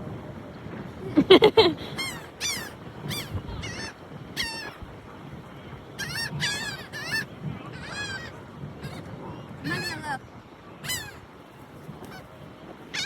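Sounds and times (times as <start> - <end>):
gulls calling: 1.0 - 5.0, 5.6 - 10.2, 10.8 - 11.3, 12.0 - 13.0.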